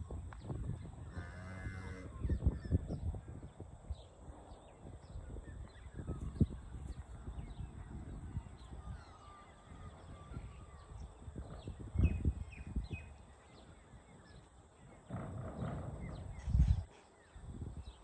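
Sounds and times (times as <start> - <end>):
small birds chirping: 0.3 - 18.0
low bumps: 14.3 - 16.9.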